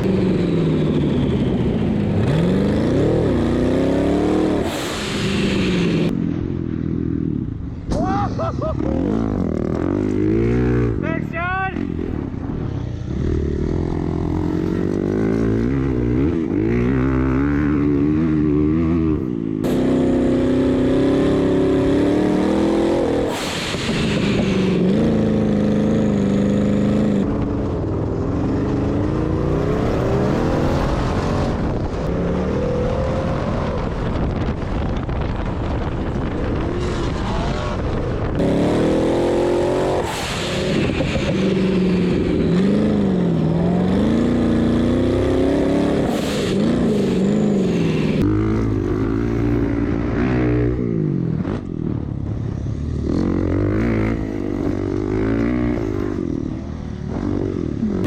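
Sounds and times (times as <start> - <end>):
off-road vehicle engine revving: 0.0 - 6.1, 8.4 - 11.1, 13.1 - 27.4, 36.2 - 51.7.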